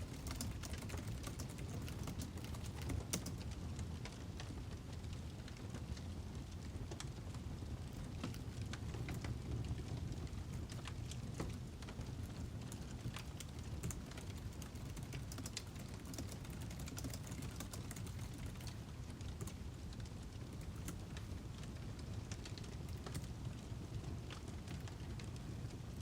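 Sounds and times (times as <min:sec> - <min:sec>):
low rumble of flames: 0:00.0 - 0:26.0.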